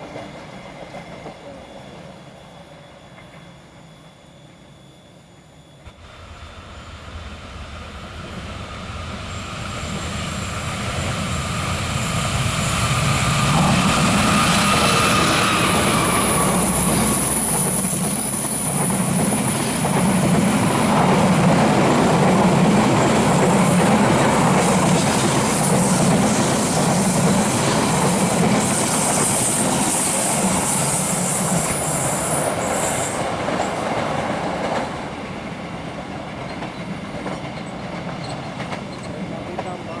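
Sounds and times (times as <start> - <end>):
train wheel squeal: 0.0 - 40.0
train carriages rumbling on rails: 5.9 - 40.0.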